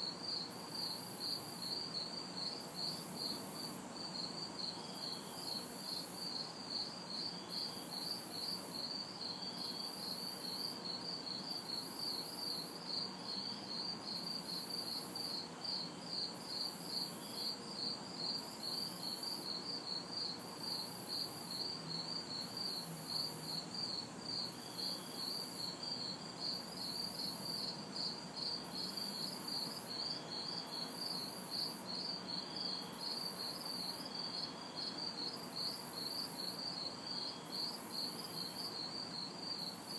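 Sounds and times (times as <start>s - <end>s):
crickets chirping: 0.0s - 39.9s
high-pitched insect call: 18.2s - 39.9s.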